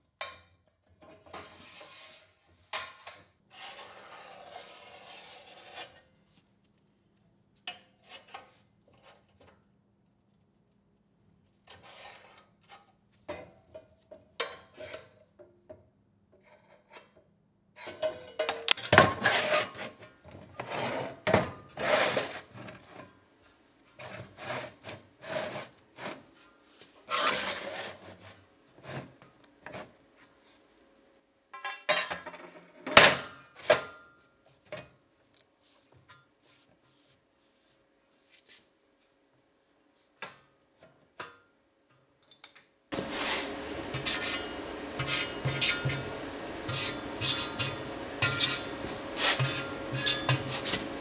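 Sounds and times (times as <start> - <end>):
clanking steel tools: 43.0 - 51.0
scraping and rubbing metal: 43.0 - 51.0.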